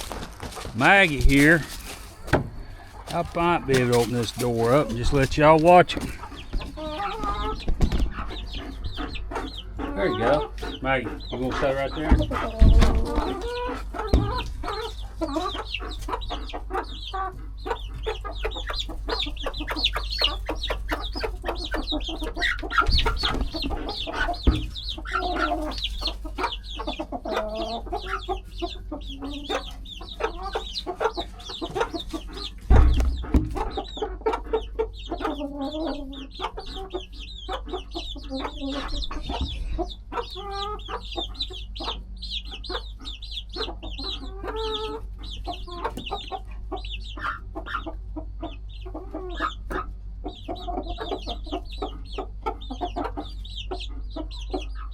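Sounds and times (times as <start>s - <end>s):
dull thumps: 0.0s - 6.6s, 14.0s - 14.6s, 32.6s - 33.8s
chickens clucking: 0.0s - 54.9s
chicks peeping: 0.0s - 54.9s.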